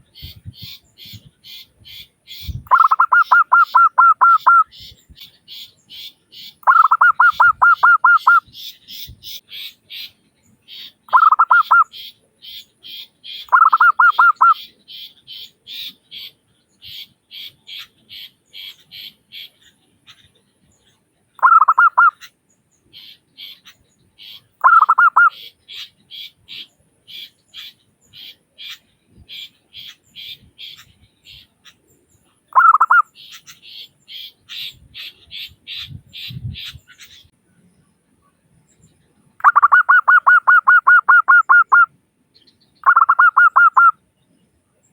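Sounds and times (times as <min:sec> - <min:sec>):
faint high-pitched chirps: 0:00.0 - 0:44.9
dove cooing song: 0:02.4 - 0:04.9, 0:06.6 - 0:09.2, 0:11.1 - 0:11.9, 0:13.4 - 0:14.7, 0:21.4 - 0:22.2, 0:24.6 - 0:25.6, 0:32.5 - 0:33.1, 0:39.4 - 0:41.9, 0:42.8 - 0:43.9.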